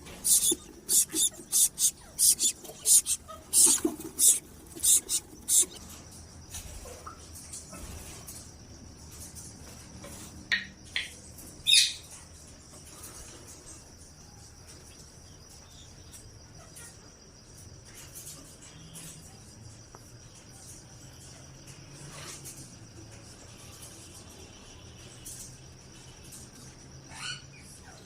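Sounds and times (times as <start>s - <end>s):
high-pitched insect-like drone: 0.1s - 5.8s
parrot calls: 0.1s - 5.8s.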